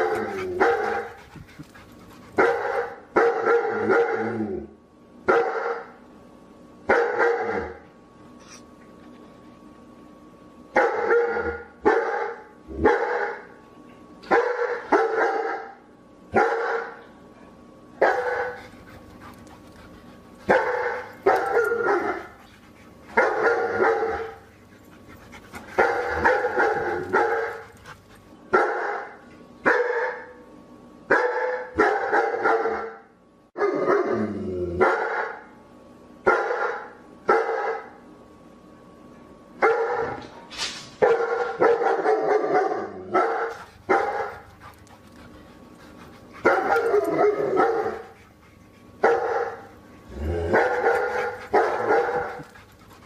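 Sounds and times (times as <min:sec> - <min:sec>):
dog barking: 0:00.0 - 0:01.2, 0:02.4 - 0:04.3, 0:05.3 - 0:05.9, 0:06.9 - 0:07.8, 0:10.8 - 0:13.5, 0:14.3 - 0:15.8, 0:16.4 - 0:17.0, 0:18.0 - 0:18.6, 0:20.5 - 0:22.4, 0:23.1 - 0:24.4, 0:25.8 - 0:27.7, 0:28.5 - 0:30.4, 0:31.1 - 0:33.0, 0:34.8 - 0:35.4, 0:36.3 - 0:38.0, 0:39.6 - 0:40.2, 0:41.0 - 0:44.4, 0:46.4 - 0:48.1, 0:49.0 - 0:49.7, 0:50.5 - 0:52.5.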